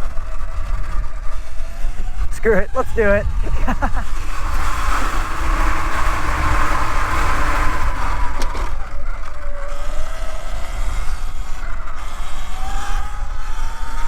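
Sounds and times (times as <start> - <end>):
electric motor whine: 0.0 - 14.0
wind rumbling on microphone: 0.0 - 14.0.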